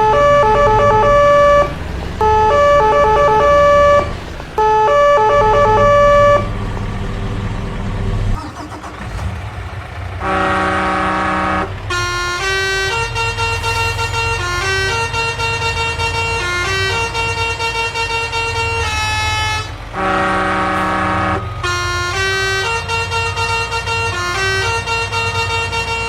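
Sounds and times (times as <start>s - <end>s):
cartoon siren-like stepped tones: 0.0s - 6.6s
horn honk: 0.0s - 6.6s, 10.2s - 26.0s
low engine rumble: 0.0s - 26.0s.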